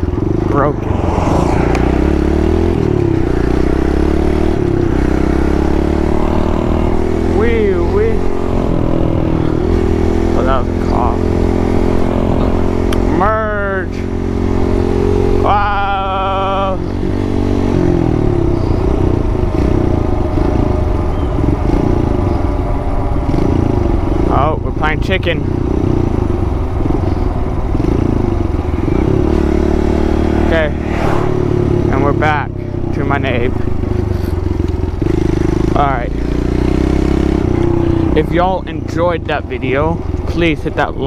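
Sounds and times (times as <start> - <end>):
wind rushing: 0.0 - 4.7, 30.3 - 31.9.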